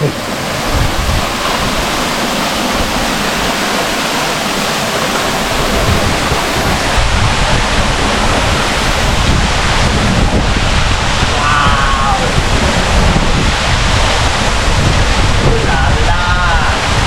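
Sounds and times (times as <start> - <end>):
waterfall rushing: 0.0 - 17.0
low rumble: 4.8 - 17.0.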